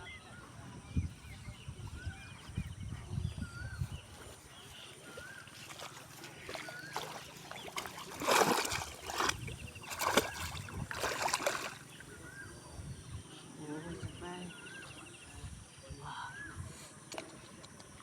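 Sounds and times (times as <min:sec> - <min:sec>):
small birds chirping: 0:00.0 - 0:18.0
hands splashing in muddy water: 0:04.3 - 0:12.1.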